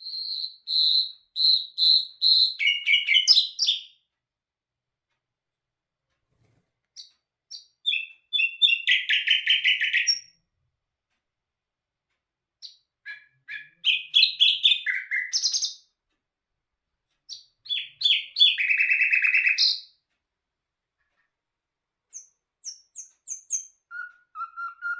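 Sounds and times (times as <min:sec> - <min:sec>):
songbird singing with trills: 0:00.0 - 0:04.0, 0:07.5 - 0:10.3, 0:12.6 - 0:15.8, 0:17.3 - 0:20.0, 0:22.1 - 0:24.9.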